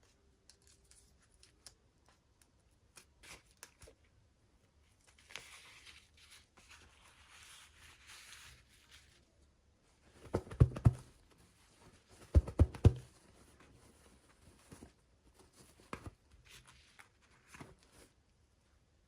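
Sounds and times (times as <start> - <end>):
sharp knocks on toys: 10.3 - 11.0, 12.3 - 13.1.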